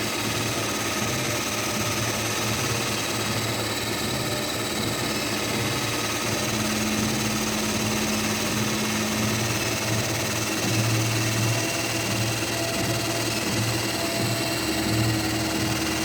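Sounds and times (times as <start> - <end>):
treadmill motor and belt humming: 0.0 - 16.0.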